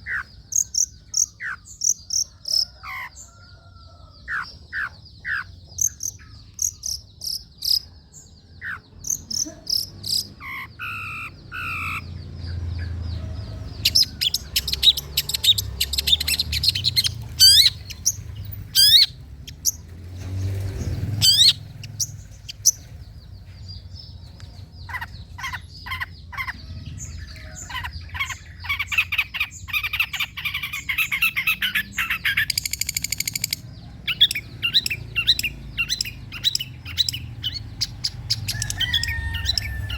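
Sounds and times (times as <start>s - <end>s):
shrike singing: 13.8s - 19.9s.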